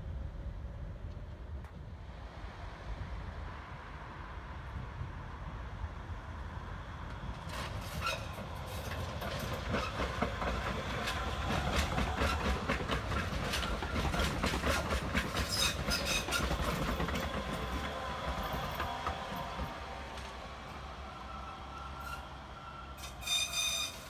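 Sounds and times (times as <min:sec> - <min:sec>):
train running rumble: 0:00.0 - 0:24.0
wheels clicking over rail joints: 0:07.4 - 0:20.9.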